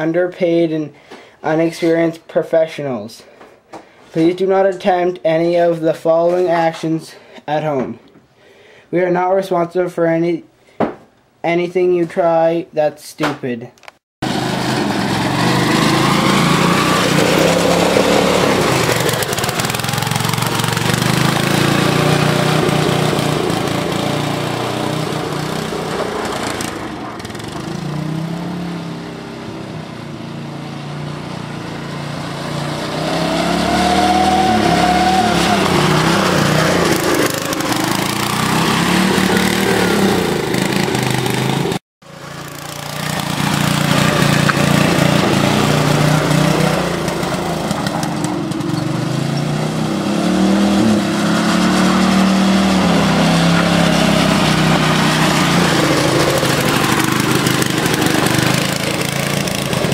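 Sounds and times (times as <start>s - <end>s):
lawn tractor engine revving: 14.2s - 59.9s.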